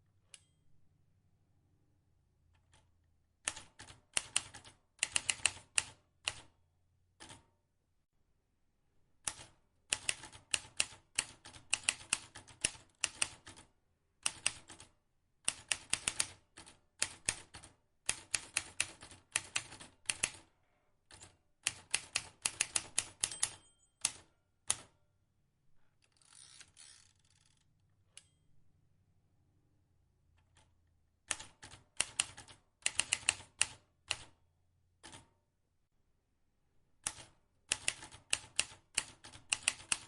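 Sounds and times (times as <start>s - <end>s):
typewriter keys clicking: 3.5s - 6.4s, 9.3s - 13.6s, 31.3s - 34.3s, 37.0s - 40.0s.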